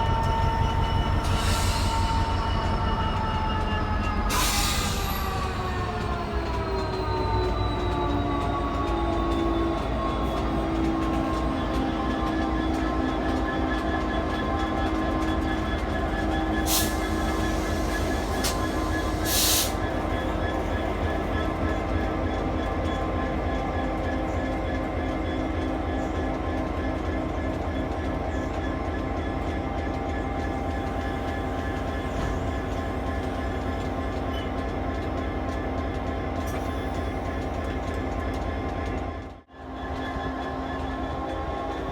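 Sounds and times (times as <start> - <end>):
diesel train rumbling past: 0.0 - 41.9.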